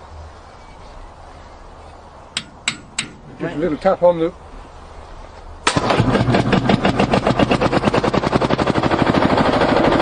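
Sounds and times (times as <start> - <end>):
tractor engine starting and running: 5.6 - 10.0.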